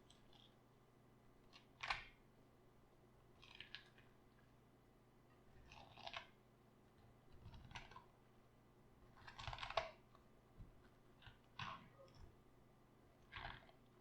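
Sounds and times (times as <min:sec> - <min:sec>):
raw cabbage crunching: 0:09.3 - 0:10.0.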